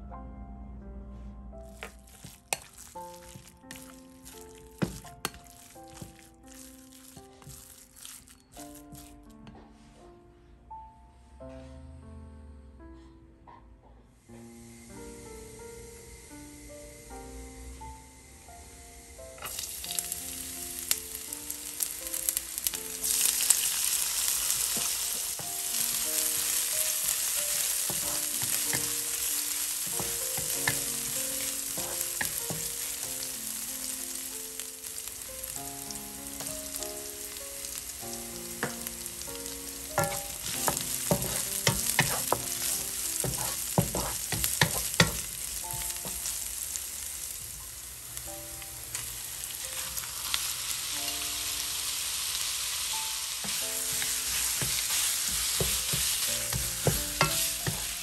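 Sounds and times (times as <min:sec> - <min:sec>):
wooden spatula scraping a wok: 0:01.7 - 0:09.9, 0:22.6 - 0:33.4, 0:36.3 - 0:46.4, 0:53.4 - 0:58.0
food sizzling in hot oil: 0:01.8 - 0:09.3, 0:18.0 - 0:58.0.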